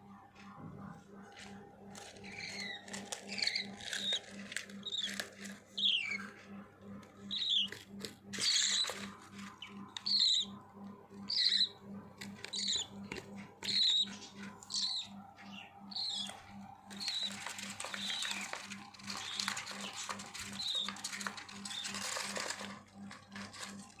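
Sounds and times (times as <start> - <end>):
low pulsing hum: 0.0 - 24.0
scratchy bird chatter: 1.2 - 24.0
budgerigar chicks chirping: 1.4 - 24.0.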